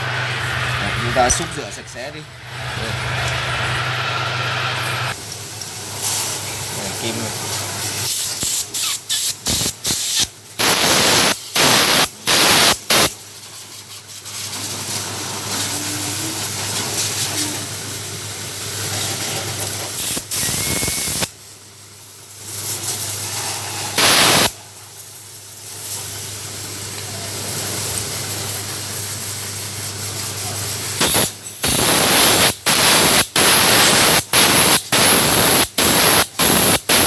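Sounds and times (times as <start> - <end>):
steady rushing noise: 0.0 - 5.2
spray blasts: 0.0 - 17.7, 18.9 - 21.3, 22.5 - 26.1, 27.2 - 37.0.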